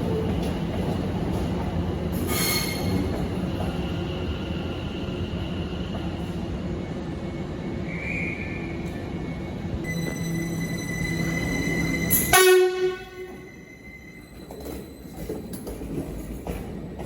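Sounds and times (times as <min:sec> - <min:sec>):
train wheels rumbling on rails: 0:00.0 - 0:17.0
high wheel squeal: 0:02.3 - 0:03.1.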